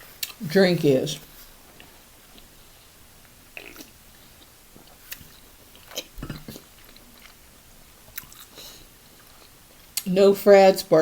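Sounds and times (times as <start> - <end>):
chewing and biting: 8.1 - 8.6.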